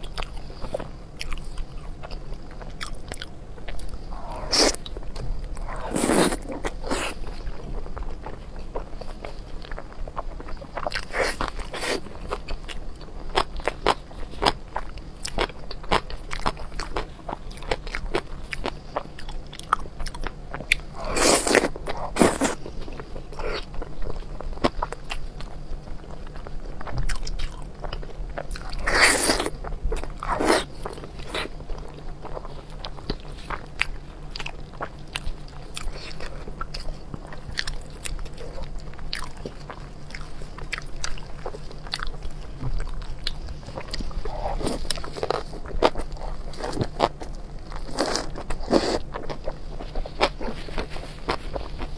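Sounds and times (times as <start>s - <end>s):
biting and chewing with crunches: 0.0s - 51.9s.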